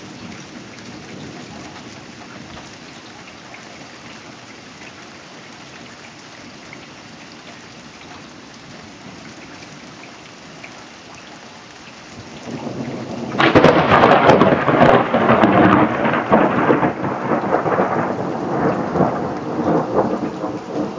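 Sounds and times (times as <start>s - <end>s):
steady rain: 0.0s - 20.9s
rolling thunder: 12.2s - 20.9s
close thunderclap: 12.3s - 20.9s.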